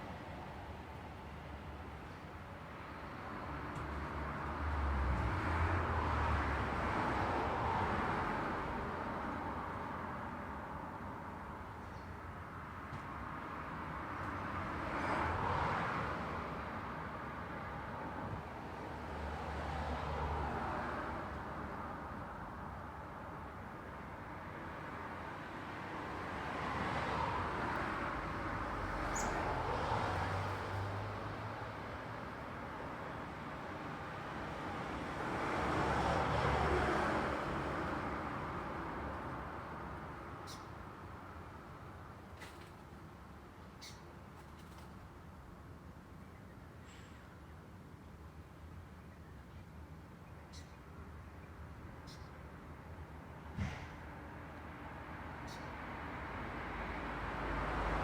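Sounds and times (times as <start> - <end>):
road traffic rushing: 25.7 - 42.5.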